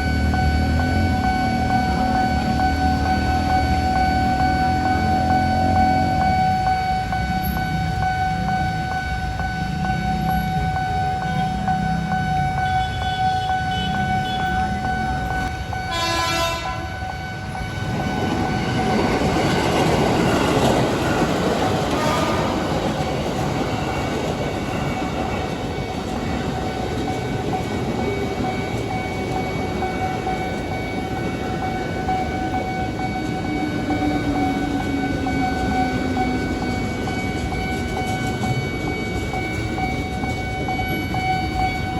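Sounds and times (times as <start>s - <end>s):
electronic crossing signal tone: 0.0s - 41.9s
train wheels clattering on rails: 13.3s - 41.9s
train horn blast: 15.8s - 17.0s, 21.9s - 22.8s.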